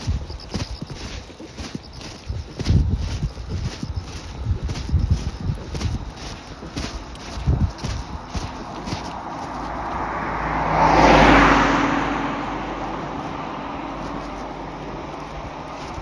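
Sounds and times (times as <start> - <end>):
car passing by: 7.9 - 16.0.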